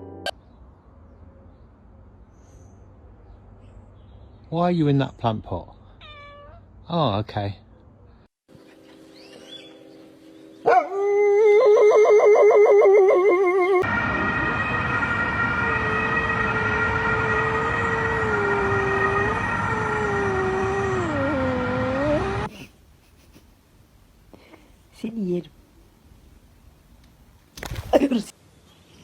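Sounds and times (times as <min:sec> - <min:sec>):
dog howling: 0:10.7 - 0:13.9, 0:15.6 - 0:22.5.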